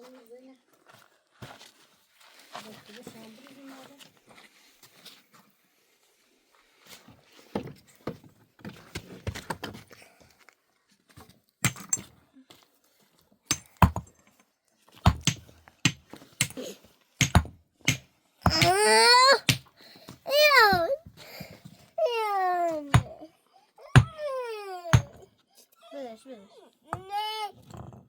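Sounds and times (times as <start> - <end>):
hard objects knocking and clacking: 11.6 - 12.1, 13.5 - 14.4, 15.1 - 19.8, 25.0 - 25.2
child wailing: 18.5 - 19.5, 20.3 - 21.0, 22.0 - 25.2, 26.9 - 27.6.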